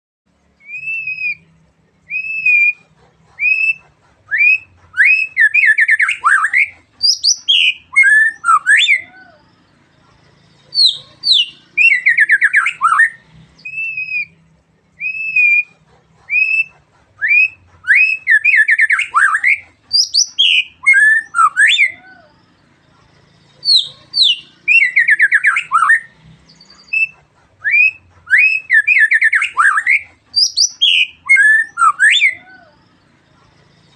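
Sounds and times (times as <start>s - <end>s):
songbird singing whistles and trills: 0.6s - 33.9s.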